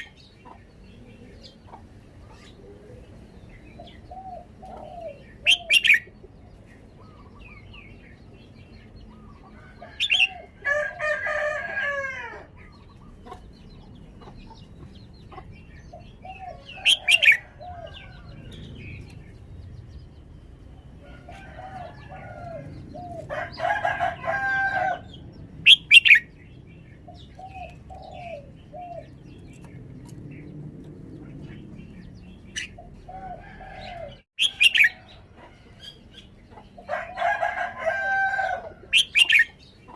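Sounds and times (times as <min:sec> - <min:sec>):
rooster crowing: 0:09.6 - 0:12.5, 0:21.0 - 0:25.1, 0:33.1 - 0:35.6, 0:36.9 - 0:39.0.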